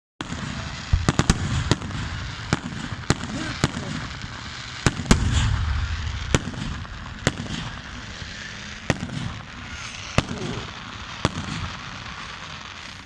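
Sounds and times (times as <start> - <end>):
fireworks bangs: 0.2 - 13.0
fireworks crackling: 0.2 - 13.0
low rumble: 5.1 - 9.2.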